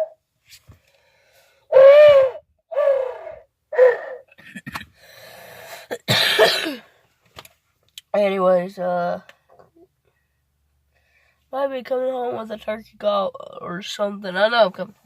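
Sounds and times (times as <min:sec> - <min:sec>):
owl call hoots: 0:01.7 - 0:04.3.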